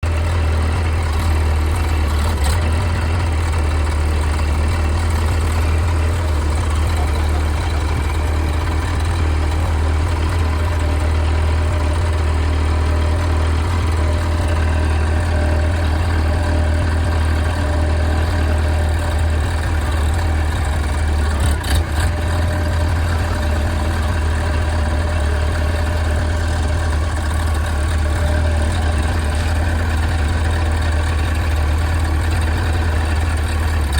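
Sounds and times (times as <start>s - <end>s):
backhoe engine humming: 0.0s - 33.9s.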